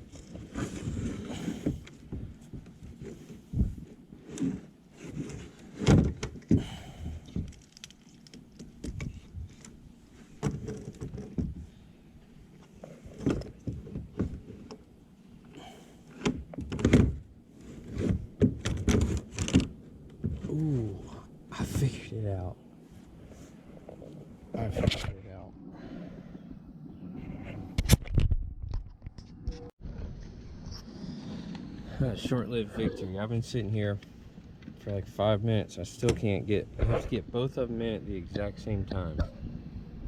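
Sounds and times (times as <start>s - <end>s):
kayak seat knocks and scraping: 0.1s - 6.6s, 12.7s - 14.8s, 16.2s - 20.5s.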